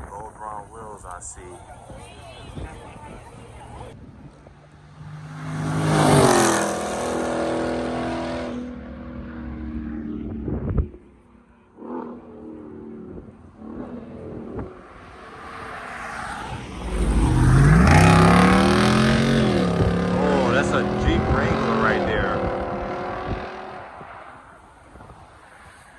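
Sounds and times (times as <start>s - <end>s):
car engines accelerating past: 4.6s - 10.6s, 11.7s - 24.6s.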